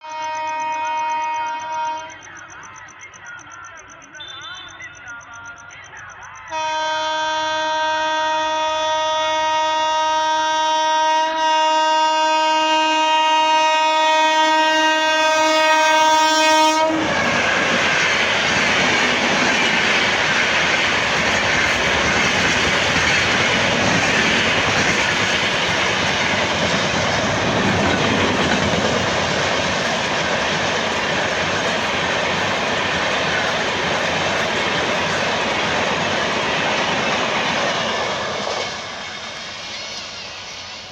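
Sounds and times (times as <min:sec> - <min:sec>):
locomotive horn blast: 0:00.0 - 0:02.2, 0:06.5 - 0:17.3
train passing with wheel clatter: 0:00.0 - 0:40.9.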